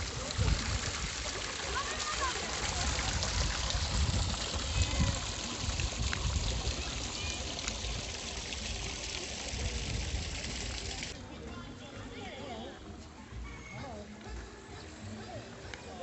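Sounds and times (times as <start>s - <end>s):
water flowing: 0.0s - 11.3s.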